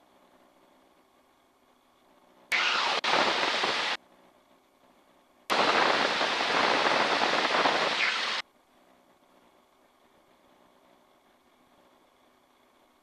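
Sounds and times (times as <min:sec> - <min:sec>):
cockpit engine and wind noise: 0:02.5 - 0:04.0, 0:05.5 - 0:08.4.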